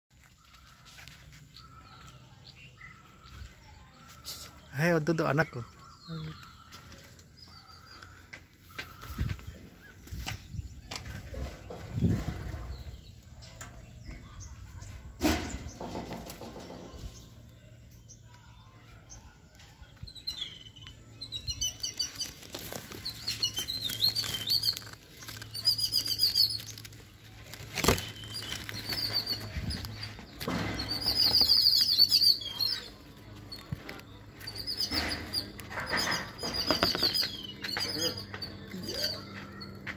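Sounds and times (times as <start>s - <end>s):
small birds chirping: 0.1s - 39.9s
leaves and branches rustling: 21.4s - 37.4s.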